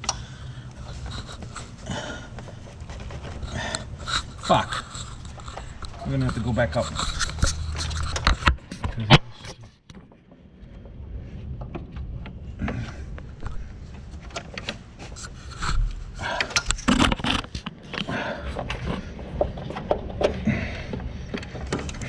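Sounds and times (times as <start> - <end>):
engine on hoist scraping: 0.0 - 8.6.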